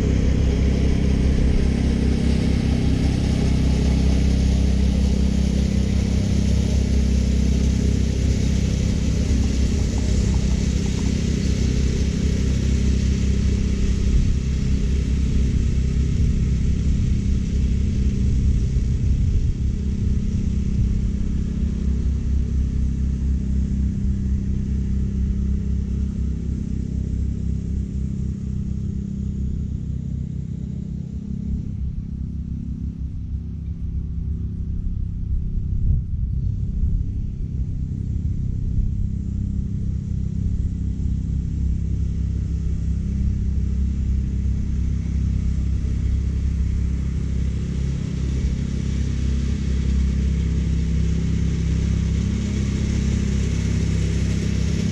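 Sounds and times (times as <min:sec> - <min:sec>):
mower engine humming: 0:00.0 - 0:29.8, 0:36.4 - 0:54.9.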